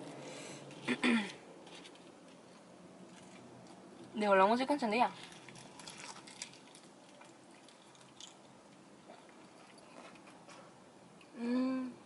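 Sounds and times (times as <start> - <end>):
faint chewing with soft clicks: 5.2 - 11.4
person humming mm: 11.3 - 12.0.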